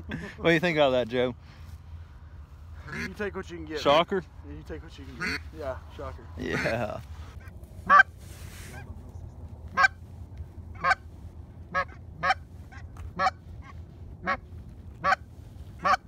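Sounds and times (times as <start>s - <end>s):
low wind rumble: 0.0s - 16.0s
goose honking: 2.8s - 3.2s, 5.0s - 5.6s, 6.4s - 8.9s, 9.7s - 10.0s, 10.7s - 11.1s, 11.7s - 16.0s.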